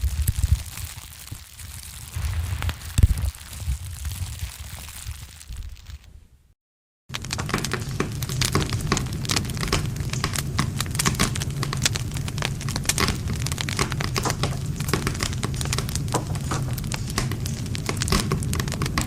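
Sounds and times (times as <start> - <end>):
campfire crackling and popping: 0.0 - 6.2, 7.1 - 19.0
low rumble of flames: 0.0 - 19.0.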